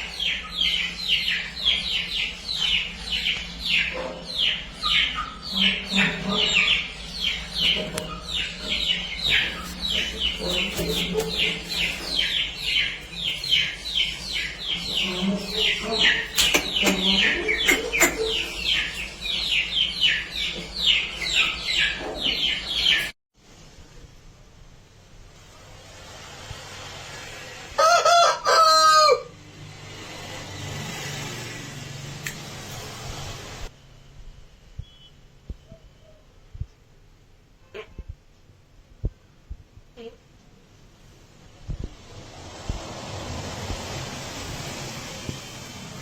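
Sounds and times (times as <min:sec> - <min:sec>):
small birds chirping: 0:00.0 - 0:23.1.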